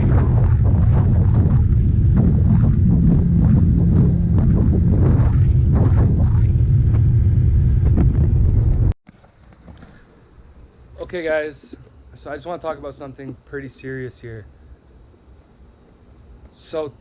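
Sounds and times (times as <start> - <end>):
motorboat humming: 0.0 - 9.0
wind buffeting microphone: 0.0 - 9.0.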